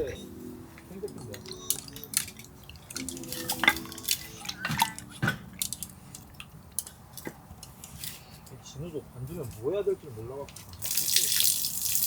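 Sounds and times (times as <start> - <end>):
utensils and dishes clinking: 0.0 - 8.2
small drip-like sounds: 10.5 - 12.0.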